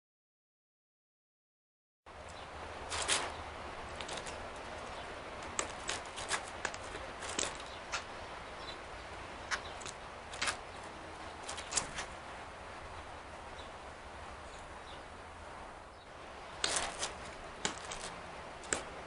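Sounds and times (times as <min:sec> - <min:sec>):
steady low hum: 0:02.1 - 0:19.0
bird pecking at peanut shells: 0:16.5 - 0:19.0.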